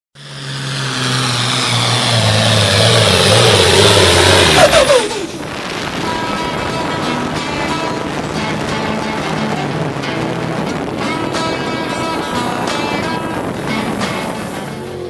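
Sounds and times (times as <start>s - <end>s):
truck engine revving hard: 0.2s - 15.0s.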